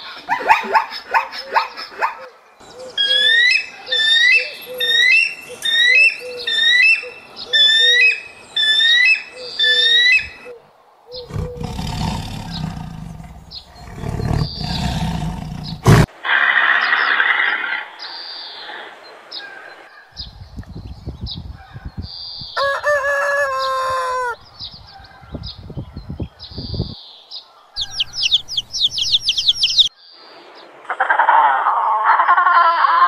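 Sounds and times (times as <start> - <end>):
lion growling: 11.2 - 16.1
rooster crowing: 22.6 - 24.4.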